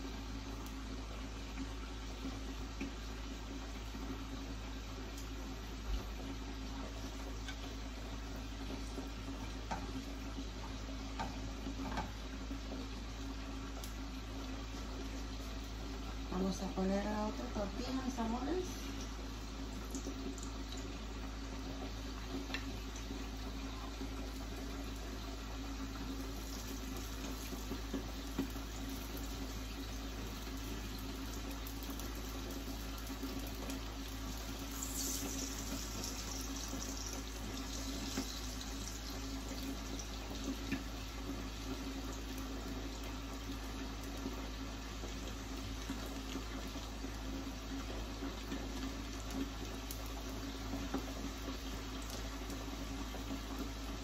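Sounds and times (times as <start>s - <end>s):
tortilla sizzling in oil: 0.0s - 54.0s.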